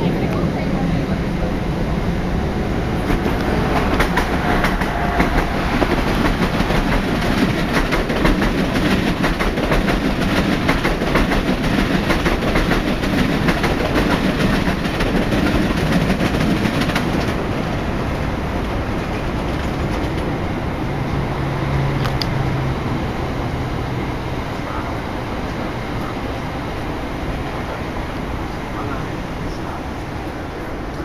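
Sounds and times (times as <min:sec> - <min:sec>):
train wheels rumbling on rails: 0:00.0 - 0:31.0
rails clicking and clattering: 0:02.9 - 0:20.5.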